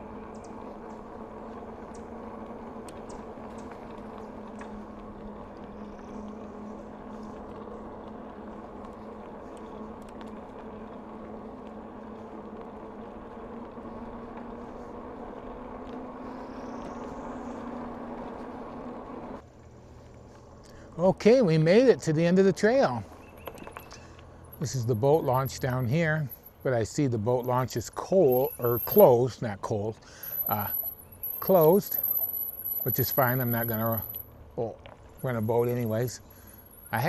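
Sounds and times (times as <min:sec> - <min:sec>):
bicycle rolling hum: 0:00.0 - 0:37.0
faint ticks: 0:00.3 - 0:14.9.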